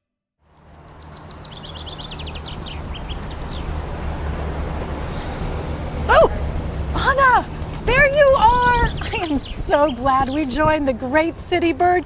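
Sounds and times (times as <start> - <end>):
low traffic rumble: 0.4 - 12.0.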